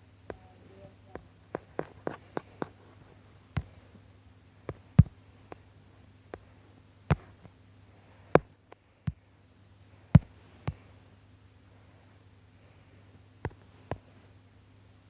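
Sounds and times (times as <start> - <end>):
low electrical hum: 0.0 - 15.0
heavy thumping taps: 3.5 - 3.8, 4.7 - 5.6, 7.1 - 7.6, 10.2 - 10.8.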